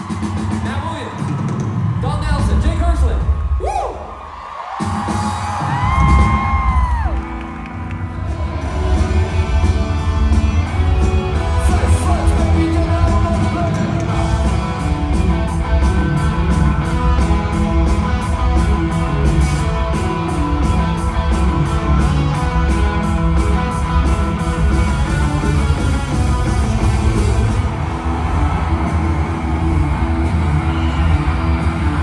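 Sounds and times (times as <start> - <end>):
drums with steady beat: 0.0 - 7.6, 8.2 - 32.0
electric guitar: 5.7 - 32.0
person singing: 11.2 - 14.7.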